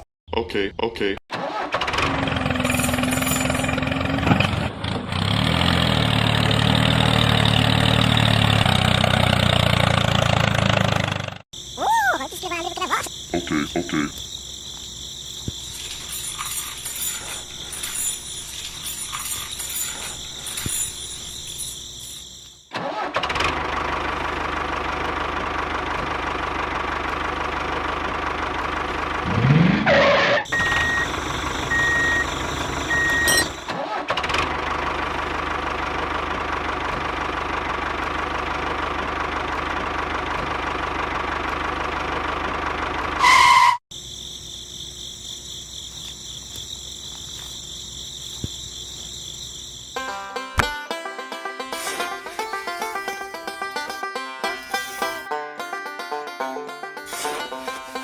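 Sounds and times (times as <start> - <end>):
crickets chirring: 11.5 - 22.7, 30.5 - 33.7, 43.5 - 56.0, 56.9 - 58.0.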